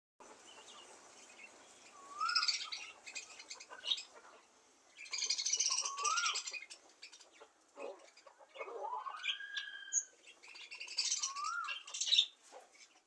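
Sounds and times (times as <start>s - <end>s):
bird whistle: 2.0s - 2.7s, 5.6s - 6.4s, 9.1s - 10.1s, 11.1s - 12.2s.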